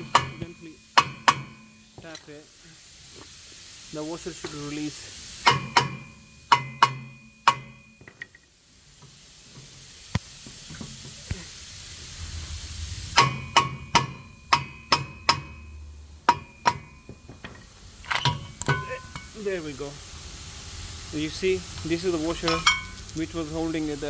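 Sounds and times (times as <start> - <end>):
hammer striking metal: 0.0 - 1.8, 5.5 - 7.9, 13.2 - 15.6, 16.3 - 17.5, 18.1 - 19.3, 22.4 - 23.3.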